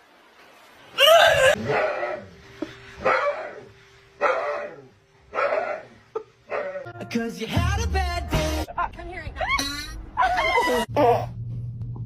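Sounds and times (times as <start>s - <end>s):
dog barking: 3.0s - 6.9s.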